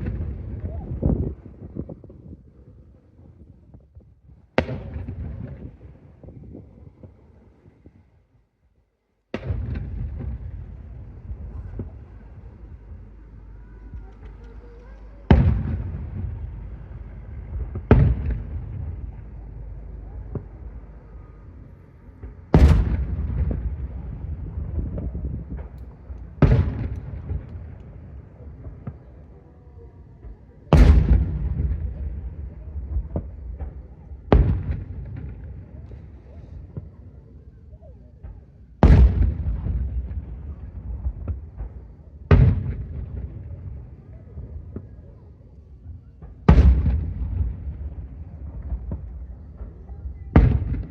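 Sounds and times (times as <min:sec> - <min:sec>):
fireworks booming: 0:00.0 - 0:08.2, 0:09.2 - 0:50.9
fireworks crack: 0:00.0 - 0:08.3, 0:09.2 - 0:50.9
rumble: 0:00.0 - 0:50.9.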